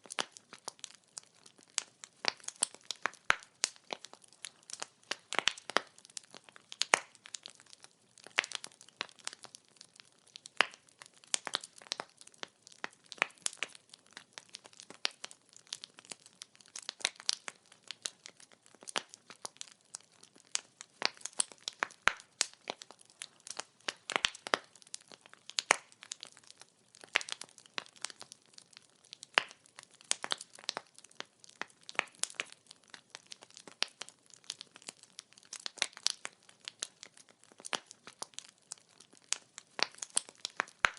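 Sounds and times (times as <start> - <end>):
firewood crackling and popping: 0.0 - 40.9.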